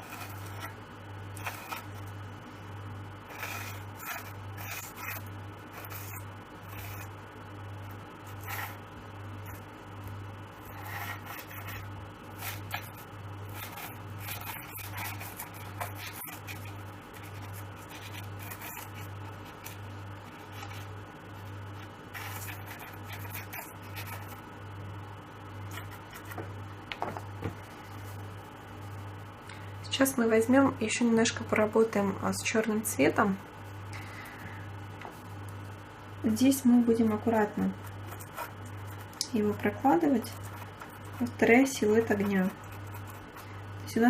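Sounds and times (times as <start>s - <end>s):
pastel scratching on paper: 0.0s - 2.1s, 3.3s - 7.2s, 8.3s - 8.8s, 10.6s - 21.0s, 21.8s - 24.4s, 25.7s - 26.5s, 37.1s - 43.6s
faint low pulsing hum: 0.0s - 44.0s.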